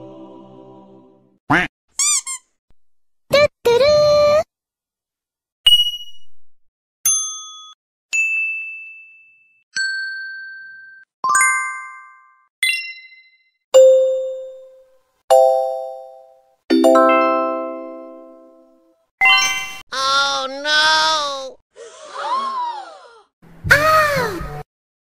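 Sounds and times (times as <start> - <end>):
chime dings: 7.1 - 18.6.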